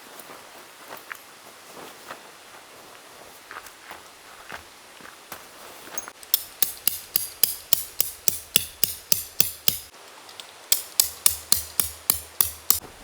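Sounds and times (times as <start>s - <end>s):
hammer striking tent pegs: 6.2s - 9.9s, 10.7s - 12.9s.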